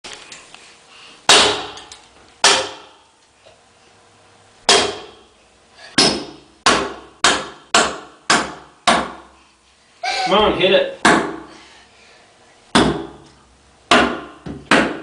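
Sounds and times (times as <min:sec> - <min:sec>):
hammer striking wooden board: 0:01.3 - 0:03.0, 0:04.7 - 0:05.2, 0:06.0 - 0:09.3, 0:11.0 - 0:11.4, 0:12.7 - 0:13.2, 0:13.9 - 0:15.0.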